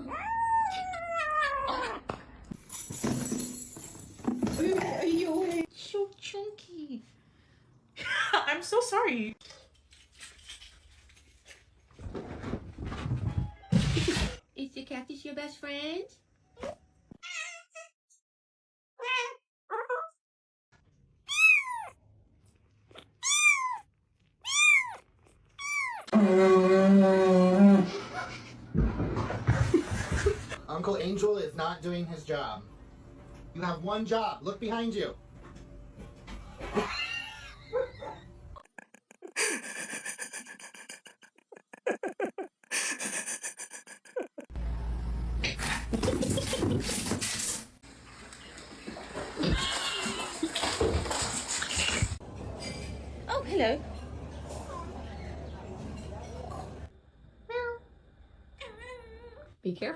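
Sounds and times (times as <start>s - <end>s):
cat meowing: 0.0s - 2.0s, 17.2s - 17.9s, 19.0s - 20.2s, 21.3s - 22.0s, 23.0s - 26.1s.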